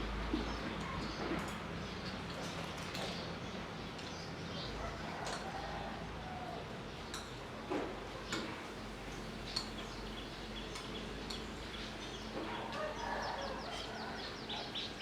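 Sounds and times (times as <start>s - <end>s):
songbird call notes and clicks: 9.5s - 12.3s.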